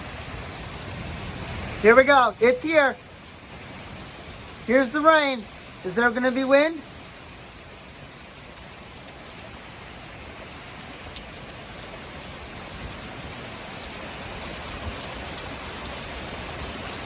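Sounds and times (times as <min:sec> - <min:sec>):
heavy rain pouring: 0:00.0 - 0:17.0
raindrops ticking: 0:00.0 - 0:17.0.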